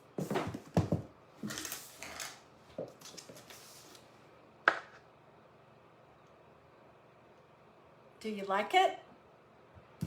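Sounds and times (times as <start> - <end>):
handling rustles and scrapes: 1.4 - 4.1.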